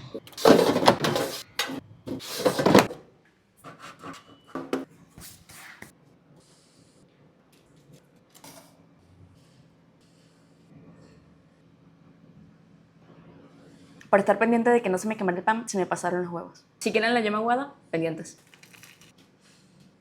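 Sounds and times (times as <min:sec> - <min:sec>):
kitchen items clattering: 0:00.0 - 0:03.0
rough scrape: 0:00.4 - 0:03.0.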